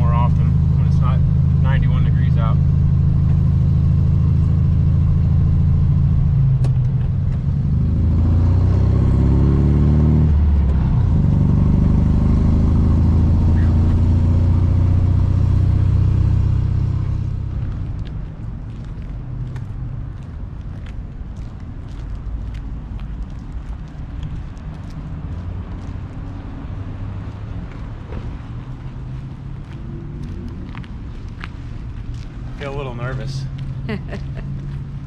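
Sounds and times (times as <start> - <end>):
car engine accelerating: 0.0 - 18.2.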